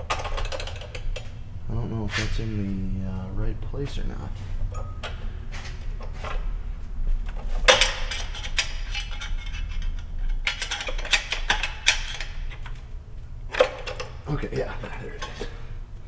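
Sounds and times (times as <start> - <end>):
low steady hum: 0.0 - 16.0
metal clinks and taps: 4.6 - 5.3.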